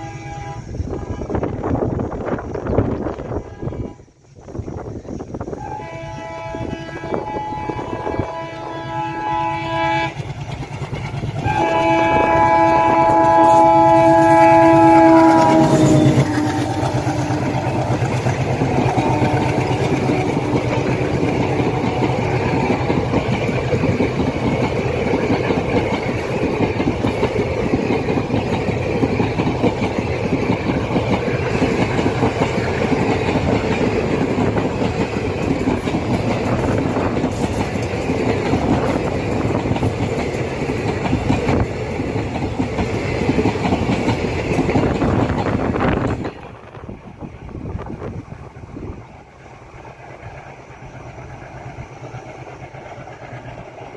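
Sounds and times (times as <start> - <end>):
multi-tone train horn: 0.0 - 1.8, 3.0 - 4.3, 5.5 - 10.4, 11.4 - 23.5
diesel locomotive passing: 0.0 - 53.9
wheels clacking over rail joints: 9.9 - 53.9.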